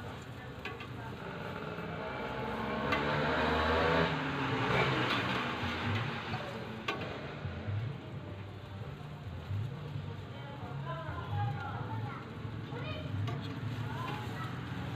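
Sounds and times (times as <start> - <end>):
motor vehicle passing: 1.0 - 8.4.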